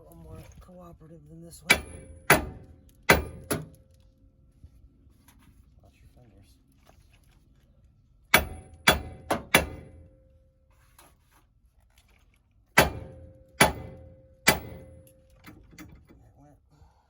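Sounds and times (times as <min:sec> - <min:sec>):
hammer ringing on steel: 0:01.7 - 0:03.7, 0:08.4 - 0:10.2, 0:12.8 - 0:15.0.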